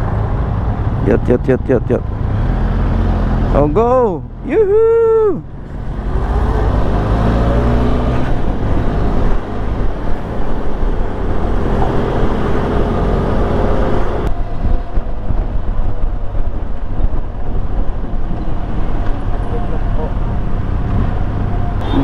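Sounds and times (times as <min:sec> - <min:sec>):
wind noise on microphone: 0:05.1 - 0:22.0.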